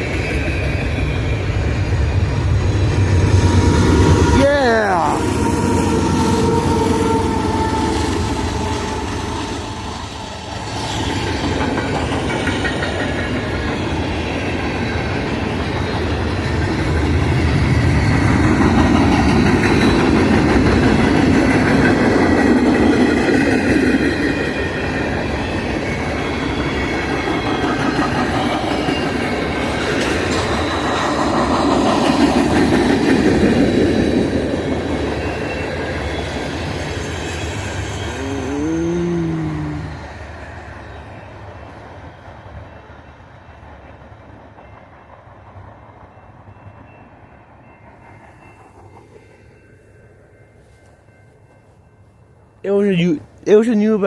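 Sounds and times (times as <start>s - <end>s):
freight train wheels clicking: 5.8s - 37.9s.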